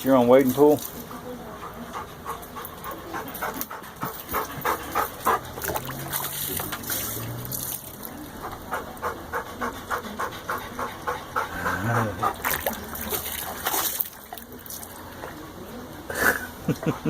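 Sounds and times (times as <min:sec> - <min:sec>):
dog panting: 0:01.4 - 0:06.4, 0:08.2 - 0:13.8.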